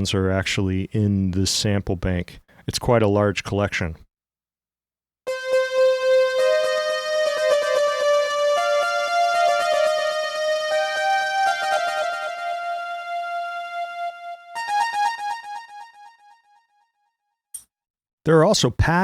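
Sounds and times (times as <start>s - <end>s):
synth lead melody: 5.3s - 16.8s.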